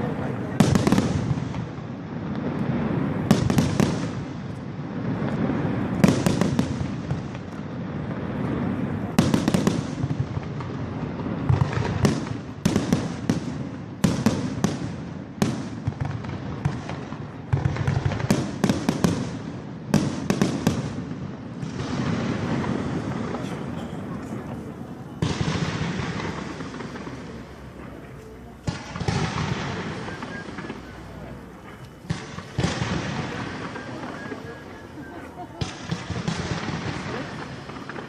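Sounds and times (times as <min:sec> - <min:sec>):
fireworks bangs and crackles: 0:00.0 - 0:38.0
continuous low rumble: 0:20.9 - 0:38.0.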